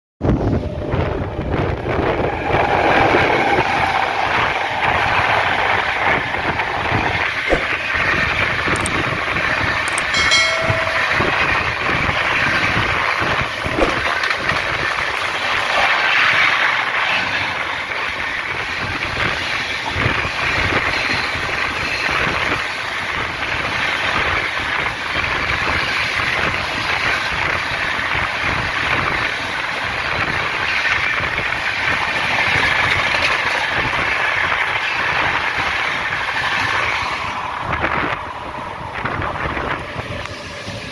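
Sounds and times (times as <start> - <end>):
passing train coaches: 0.2 - 40.9
train wheels rumbling on rails: 0.2 - 40.9
short pitched tone: 9.9 - 12.0.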